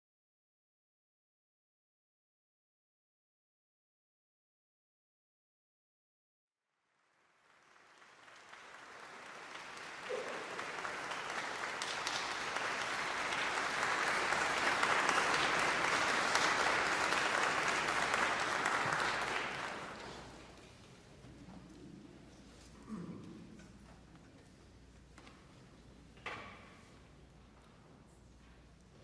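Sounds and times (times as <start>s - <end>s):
audience applauding: 7.0s - 20.6s.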